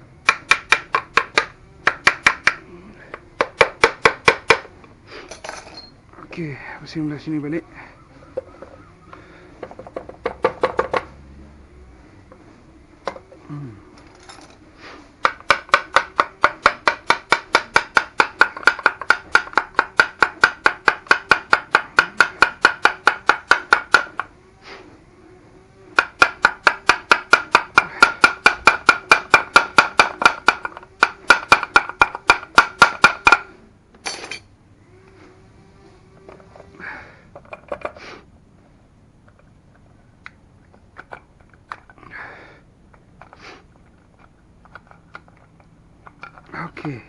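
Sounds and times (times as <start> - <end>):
hammer tapping on metal engine: 0.2 - 2.6, 15.2 - 24.3, 26.0 - 33.5.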